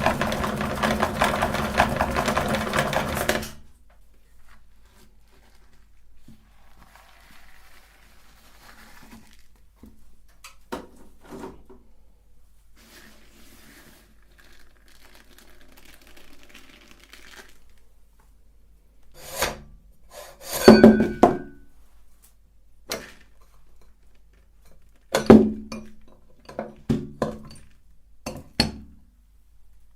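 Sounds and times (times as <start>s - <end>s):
faint scratching: 4.2s - 9.6s.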